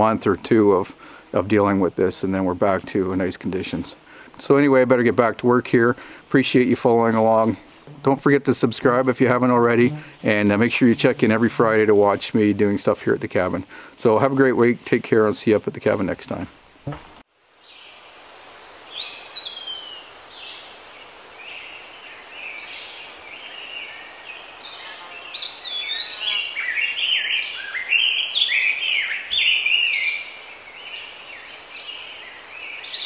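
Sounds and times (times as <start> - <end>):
steady background hiss: 0.0 - 33.0
songbirds singing and chirping: 17.6 - 18.0, 18.6 - 33.0.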